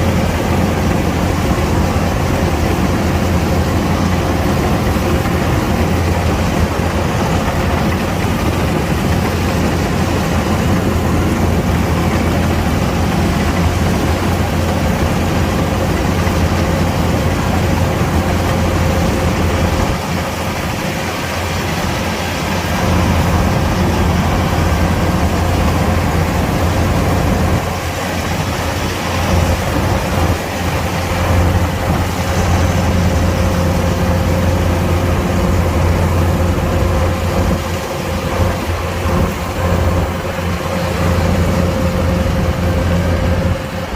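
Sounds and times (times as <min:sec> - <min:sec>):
combine harvester running: 0:00.0 - 0:43.9.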